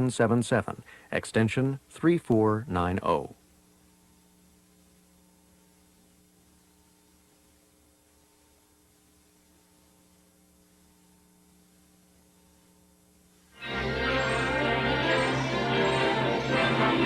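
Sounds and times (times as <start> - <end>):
faint electrical hum: 0.0 - 17.0
loud music: 13.6 - 17.0.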